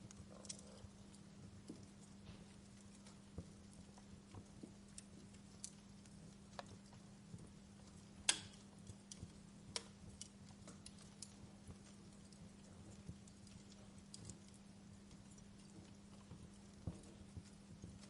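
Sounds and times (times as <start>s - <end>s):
faint steady hum: 0.0s - 18.0s
wood fire crackling: 0.0s - 18.0s.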